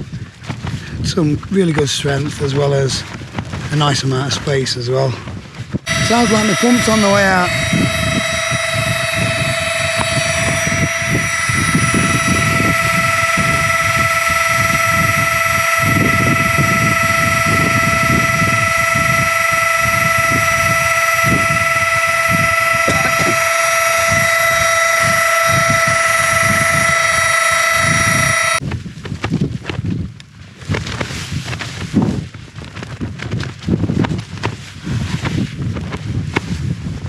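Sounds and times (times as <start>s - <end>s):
wind buffeting: 5.8s - 28.7s
electric air pump whine: 5.9s - 28.6s.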